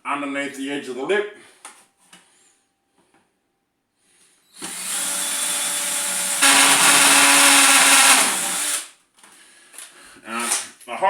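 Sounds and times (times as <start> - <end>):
hammer drill boring through plastic: 4.6 - 8.9, 10.4 - 10.6.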